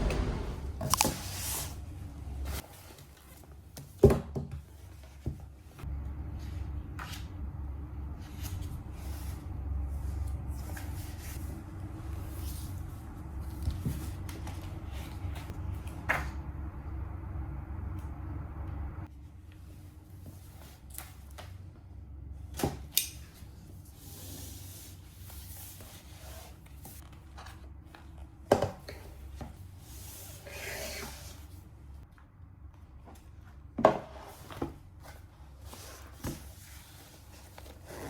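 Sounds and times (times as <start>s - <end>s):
low steady hum: 0.0s - 2.6s, 5.8s - 22.6s.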